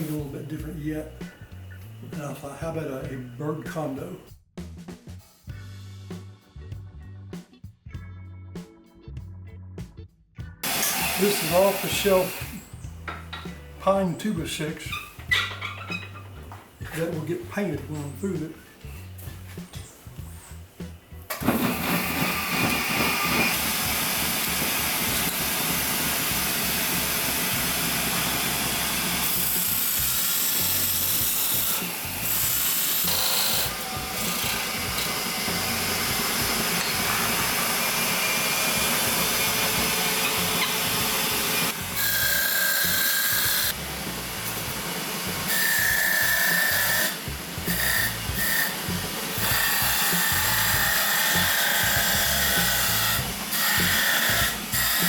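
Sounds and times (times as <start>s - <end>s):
power saw cutting wood: 0.0s - 4.2s, 10.6s - 13.2s, 21.3s - 55.0s.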